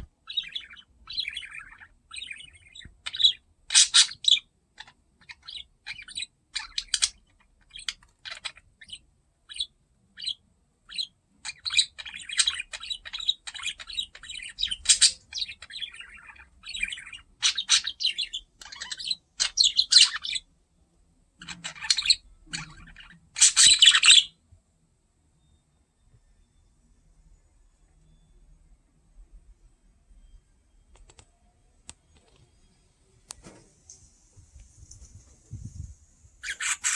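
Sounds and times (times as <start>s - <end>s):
budgerigar chirping: 0.0s - 20.5s, 21.4s - 24.4s, 36.4s - 36.9s.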